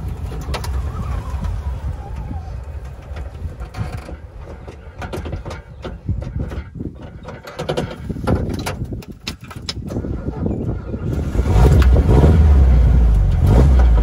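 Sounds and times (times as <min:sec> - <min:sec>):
engine rumble: 0:00.0 - 0:14.0
rattles and knocks: 0:02.2 - 0:10.4.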